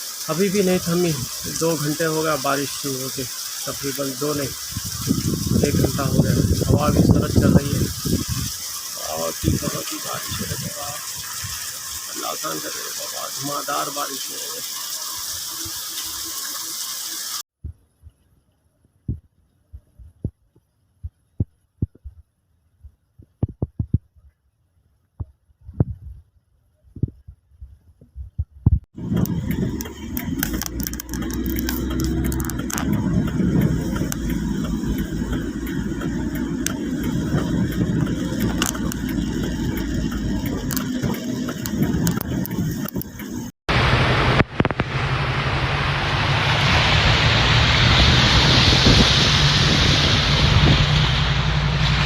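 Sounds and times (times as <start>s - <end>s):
heavy rain rumble: 0.0s - 15.6s, 29.0s - 52.0s
raindrops ticking: 0.0s - 17.3s, 29.0s - 43.5s.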